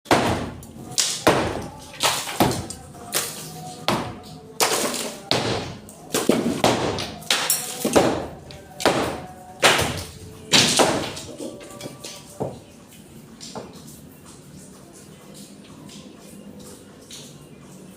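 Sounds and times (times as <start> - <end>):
heavy blows knocking down wall: 0.1 - 2.8, 3.9 - 11.3.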